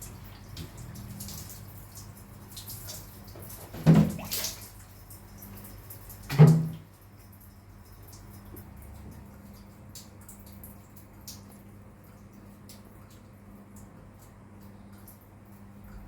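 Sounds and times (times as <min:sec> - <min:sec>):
water running and splashing: 0:00.0 - 0:07.0.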